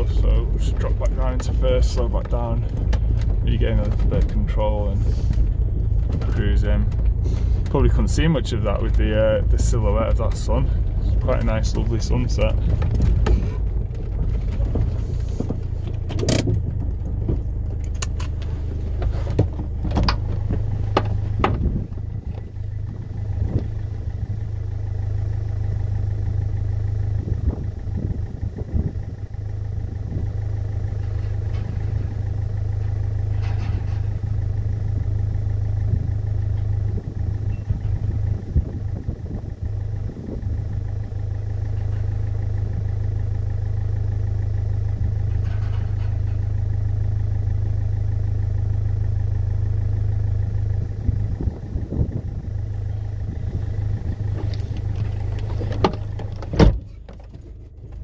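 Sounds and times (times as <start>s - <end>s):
sharp clicks and clunks: 0.0s - 4.6s, 5.2s - 8.1s, 8.7s - 22.6s, 45.2s - 46.7s, 53.8s - 58.0s
diesel engine idling: 0.0s - 58.0s.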